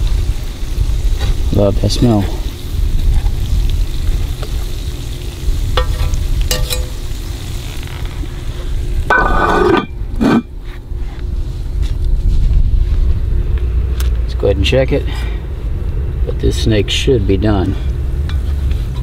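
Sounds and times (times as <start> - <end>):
wind rumble on microphone: 0.0 - 6.9, 8.0 - 14.8
food frying in hot oil: 0.0 - 9.7
metallic clinks: 6.5 - 7.0.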